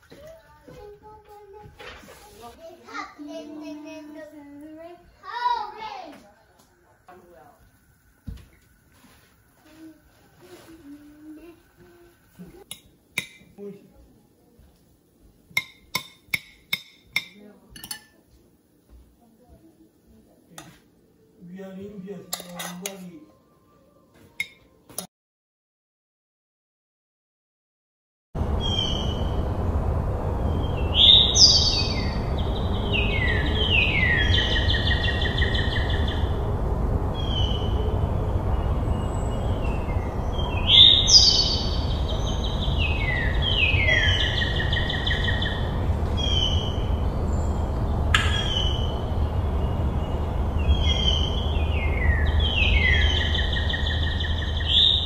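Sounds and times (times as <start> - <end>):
descending bird song: 28.4 - 55.0
steady low rumble: 28.4 - 55.0.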